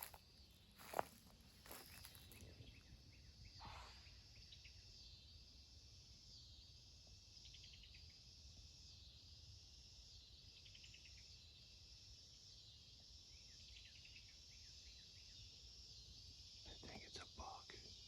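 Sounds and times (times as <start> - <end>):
insects buzzing: 0.0 - 2.8
insect chirps: 0.0 - 3.6.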